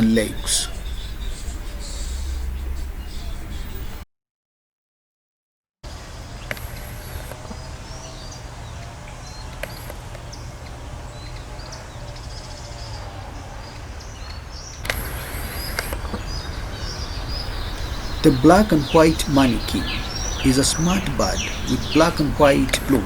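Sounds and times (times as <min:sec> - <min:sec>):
small birds chirping: 0:00.0 - 0:04.0, 0:05.9 - 0:23.0
rushing noise: 0:13.2 - 0:23.0
steady low rumble: 0:14.8 - 0:23.0.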